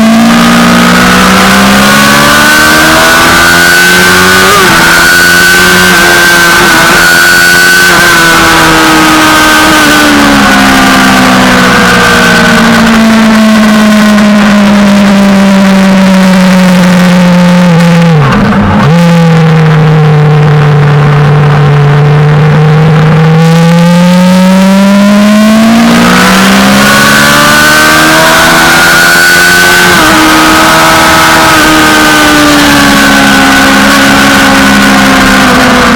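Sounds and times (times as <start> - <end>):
gear change: 0.0 - 35.9
motorcycle engine revving: 0.0 - 35.9.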